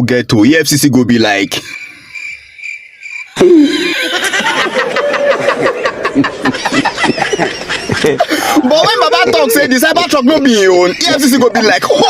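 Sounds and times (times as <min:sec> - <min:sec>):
laughter in bursts: 0:03.4 - 0:09.8.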